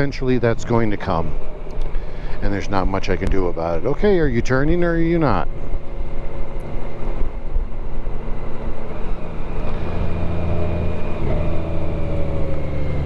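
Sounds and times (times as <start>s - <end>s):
road and wind noise: 0.0s - 13.0s
motorcycle engine running: 4.7s - 13.0s.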